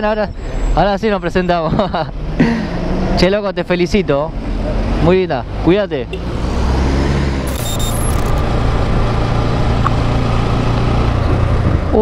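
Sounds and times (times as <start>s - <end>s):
wind and road noise: 0.0s - 12.0s
brief high-pitched tone: 7.5s - 8.4s.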